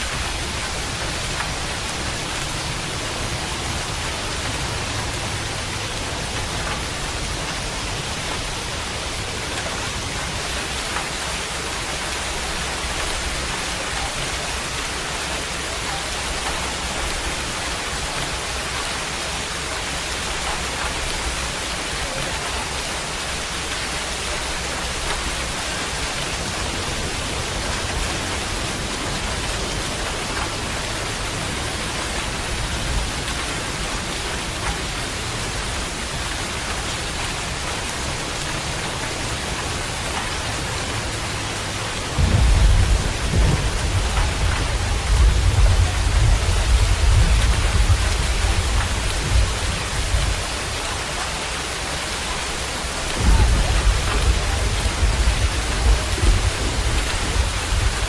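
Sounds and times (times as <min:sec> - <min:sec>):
steady rain: 0:00.0 - 0:58.0
thunder rumbling: 0:24.3 - 0:58.0.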